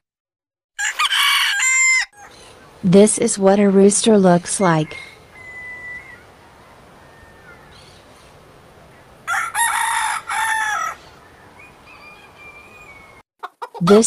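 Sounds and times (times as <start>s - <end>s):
rooster crowing: 0.8s - 2.4s, 4.9s - 8.0s, 9.2s - 13.2s.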